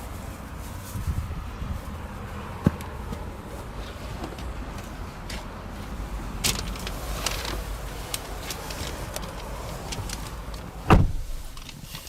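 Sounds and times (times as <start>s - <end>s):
sharp thump of a latch: 10.9s - 11.4s.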